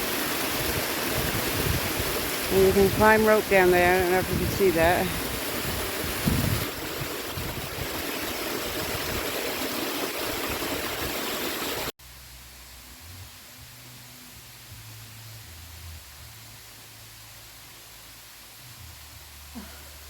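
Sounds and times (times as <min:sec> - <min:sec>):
water splashing over rocks: 0:00.0 - 0:11.9
faint hiss: 0:12.0 - 0:20.0.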